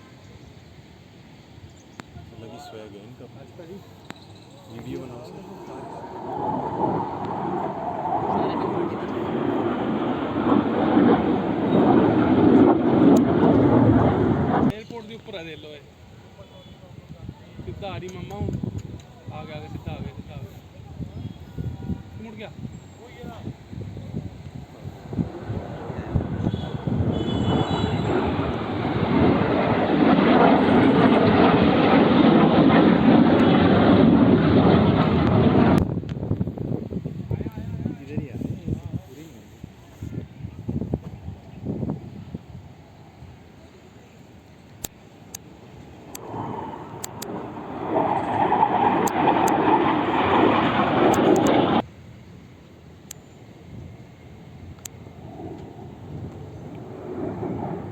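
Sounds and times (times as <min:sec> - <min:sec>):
jet flying overhead: 0:02.4 - 0:14.8, 0:21.9 - 0:38.8, 0:44.2 - 0:51.9, 0:53.7 - 0:57.9.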